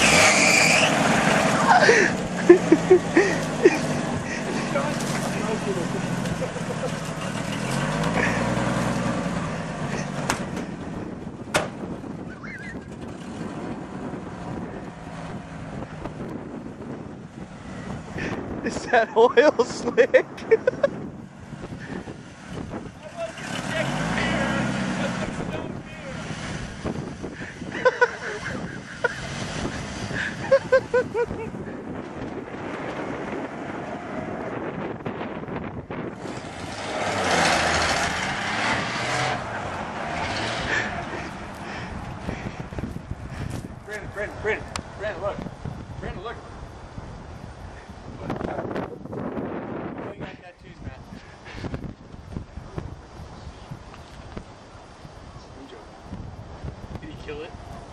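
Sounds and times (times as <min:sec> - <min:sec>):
pickup truck engine revving: 0:00.0 - 0:19.0, 0:20.8 - 0:44.8
wind buffeting microphone: 0:00.9 - 0:57.9
high-pitched chirping squeaks: 0:12.3 - 0:12.9.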